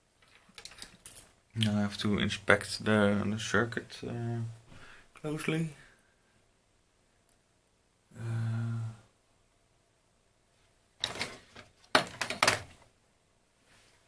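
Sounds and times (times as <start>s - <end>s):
small objects clicking and knocking: 0.2s - 1.4s, 11.0s - 12.8s
man humming hmm: 8.1s - 9.1s.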